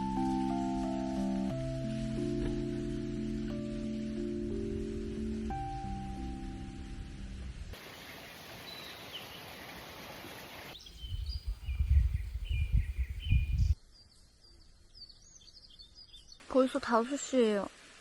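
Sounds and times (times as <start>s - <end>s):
steady hiss: 0.0s - 11.6s
small birds chirping: 7.8s - 17.4s
low rumbling gusts: 10.8s - 13.8s.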